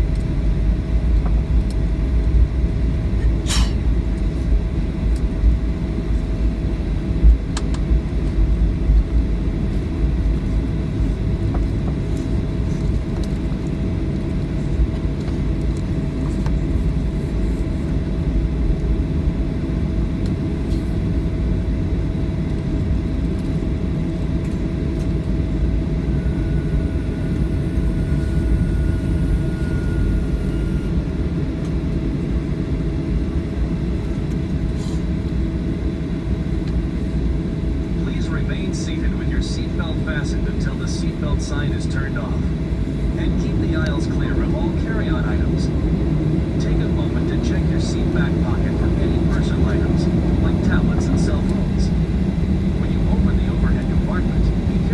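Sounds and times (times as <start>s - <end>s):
aircraft cabin rumble: 0.0s - 54.9s
engine hum: 0.0s - 54.9s.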